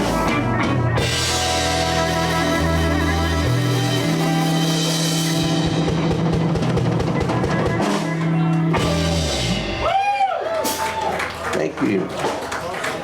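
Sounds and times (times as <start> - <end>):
drum kit hits: 0.0 - 10.0
blues band playing: 0.0 - 12.5.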